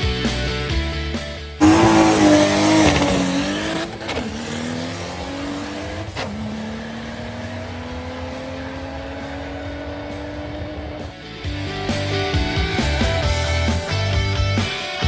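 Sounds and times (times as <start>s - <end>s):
car engine accelerating: 1.6s - 13.2s.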